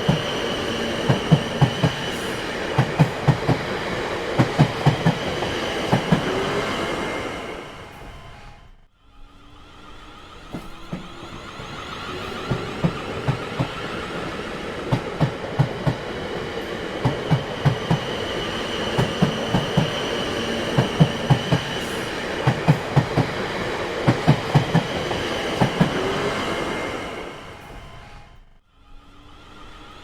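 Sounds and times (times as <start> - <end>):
train wheels clacking on rail joints: 0.0 - 6.4, 10.4 - 26.1
train rumble: 0.0 - 30.0.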